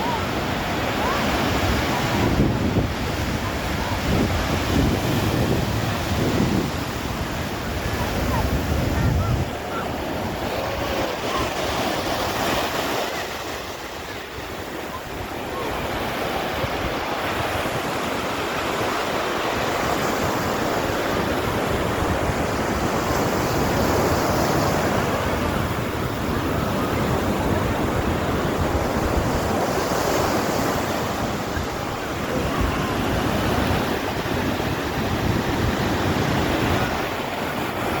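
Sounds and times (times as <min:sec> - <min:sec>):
sea surf washing onto shore: 0:00.0 - 0:38.0.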